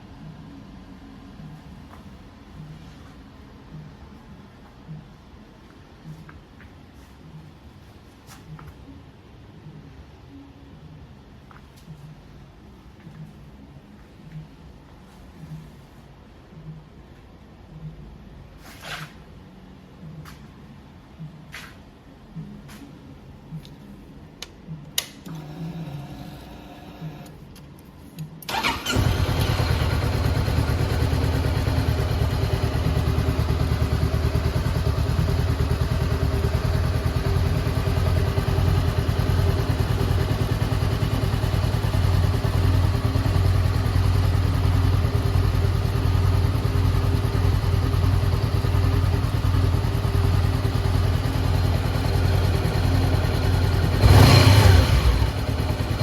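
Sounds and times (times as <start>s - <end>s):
motorcycle starter cranking: 28.4s - 30.9s
motorcycle engine idling: 28.5s - 56.0s
engine revving: 53.8s - 56.0s.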